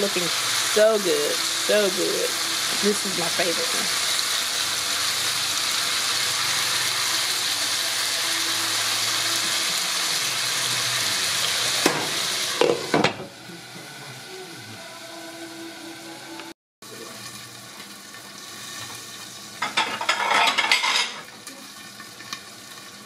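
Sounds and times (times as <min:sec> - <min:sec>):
chicken sizzling in oil: 0:00.0 - 0:23.0.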